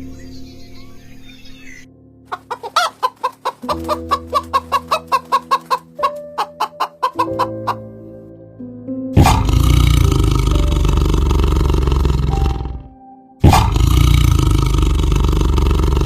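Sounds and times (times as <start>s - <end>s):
soft background music: 0.0s - 16.0s
chicken clucking: 2.3s - 7.8s.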